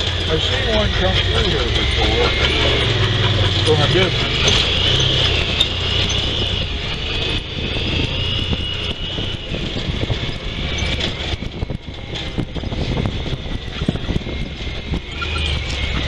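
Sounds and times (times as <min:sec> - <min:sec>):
high whine: 0:00.0 - 0:16.0
utility vehicle engine drone: 0:00.0 - 0:16.0.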